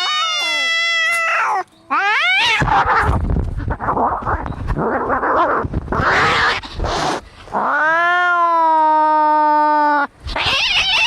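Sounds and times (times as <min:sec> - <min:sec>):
cat yowling: 0:00.0 - 0:03.2, 0:06.0 - 0:07.0, 0:07.6 - 0:11.0
cats fighting: 0:00.0 - 0:11.0.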